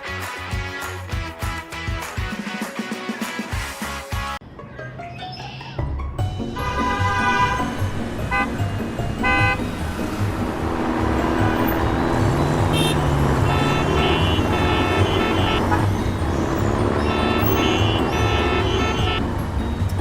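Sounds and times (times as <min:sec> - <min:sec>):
background music: 0:00.0 - 0:20.0
vehicle engine rumble: 0:06.0 - 0:20.0
horn toots: 0:06.5 - 0:09.8, 0:10.4 - 0:19.3.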